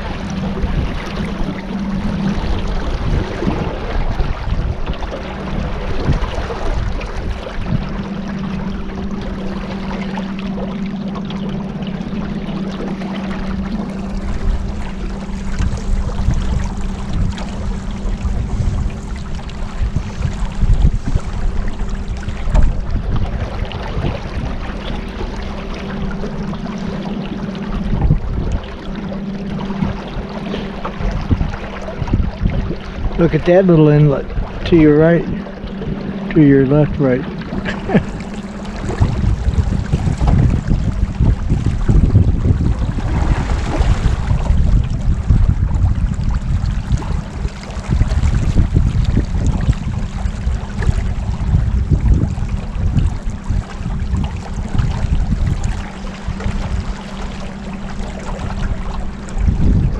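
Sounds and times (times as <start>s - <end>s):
motorboat engine hum: 0.0s - 59.9s
water rushing: 0.0s - 59.9s
wind: 0.0s - 59.9s.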